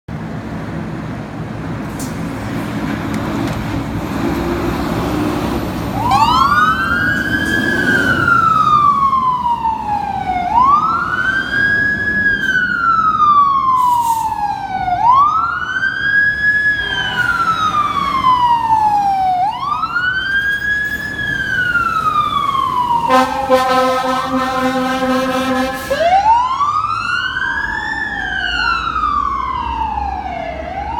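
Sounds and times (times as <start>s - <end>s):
siren wailing: 5.9s - 30.9s
heavy engine rumble: 16.6s - 26.4s.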